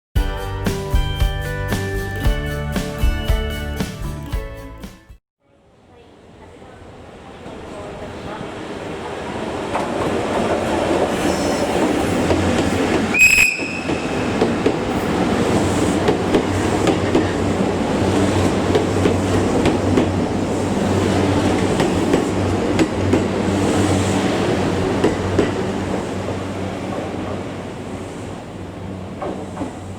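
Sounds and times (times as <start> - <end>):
train wheels rumbling on rails: 7.4 - 29.9
high-pitched squeal or whistle: 13.2 - 14.0.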